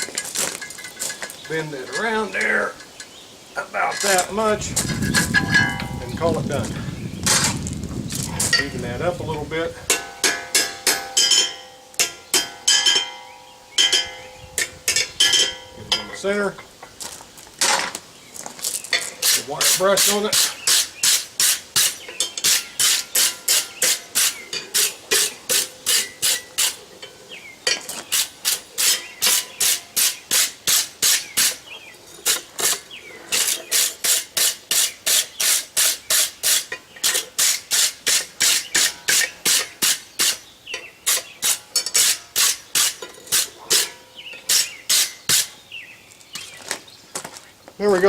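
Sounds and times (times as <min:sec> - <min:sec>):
wire brush scrubbing steel: 0:19.0 - 0:27.2, 0:27.8 - 0:40.4, 0:41.0 - 0:45.6.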